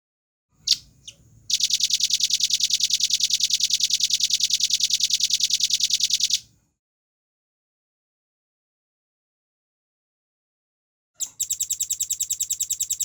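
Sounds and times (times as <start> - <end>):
bird singing with rapid trill: 0.6 - 6.5, 11.2 - 13.0.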